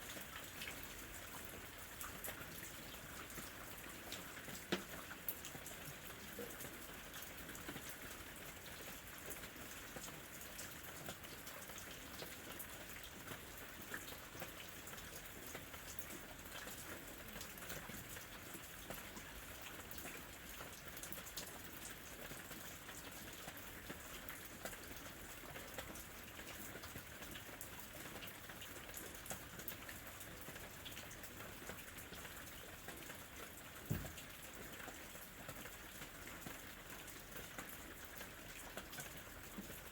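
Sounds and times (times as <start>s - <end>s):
raindrops ticking on surfaces: 0.0s - 39.9s
steady rain falling: 0.0s - 39.9s
low thump: 33.9s - 34.2s.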